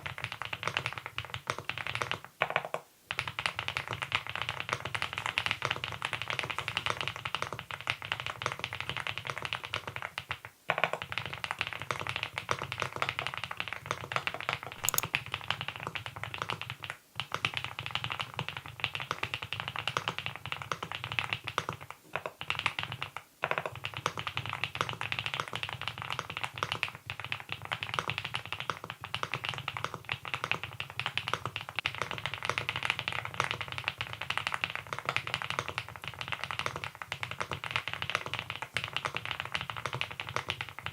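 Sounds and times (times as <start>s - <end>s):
mechanical keyboard typing: 14.8s - 15.1s.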